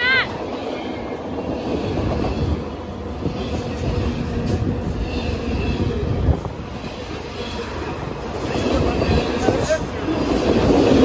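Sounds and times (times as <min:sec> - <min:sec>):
freight train wheels on rail: 0:00.0 - 0:11.0.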